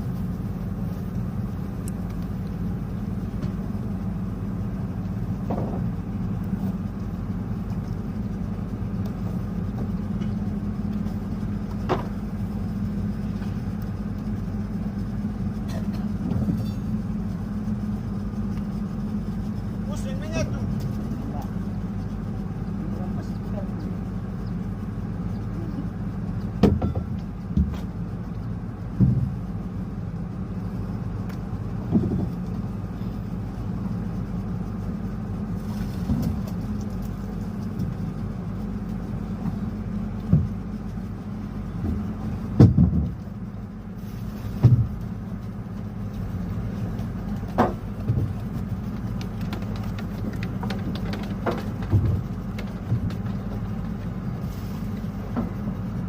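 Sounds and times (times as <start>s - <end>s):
motor engine humming: 0.0s - 56.0s
knocks and thumps: 26.6s - 27.9s, 29.0s - 29.4s, 40.2s - 40.6s, 41.8s - 43.2s, 44.6s - 45.0s, 47.5s - 54.0s.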